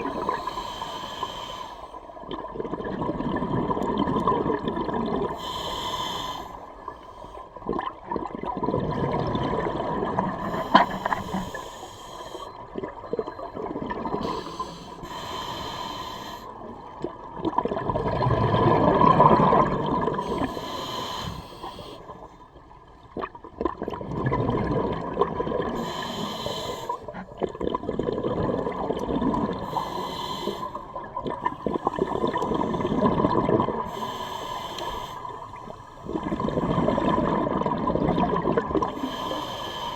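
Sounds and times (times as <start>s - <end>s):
exhaled air bubbling: 0.0s - 1.4s, 2.0s - 39.9s
hissing inhale through regulator: 0.0s - 2.2s, 5.2s - 7.6s, 10.1s - 12.8s, 14.1s - 16.9s, 20.1s - 22.5s, 25.7s - 27.3s, 29.5s - 37.2s, 38.8s - 39.9s
faint steady tone: 10.0s - 17.2s.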